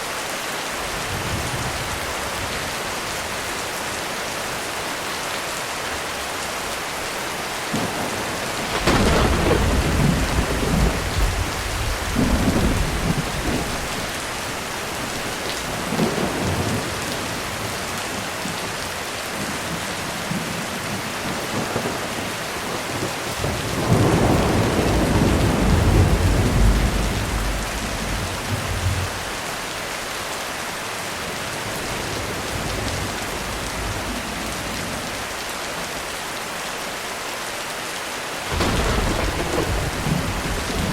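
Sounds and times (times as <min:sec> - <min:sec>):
heavy rain on a roof: 0:00.0 - 0:40.9
rolling thunder: 0:07.7 - 0:17.9, 0:19.7 - 0:29.4, 0:38.5 - 0:40.9.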